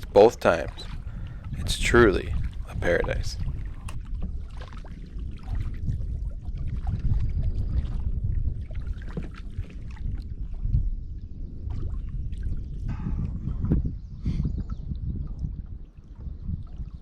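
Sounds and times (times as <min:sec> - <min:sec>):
steady low rumble: 0:00.0 - 0:04.5, 0:10.1 - 0:15.7
paddle strokes and splashes: 0:00.0 - 0:13.9, 0:14.6 - 0:17.0.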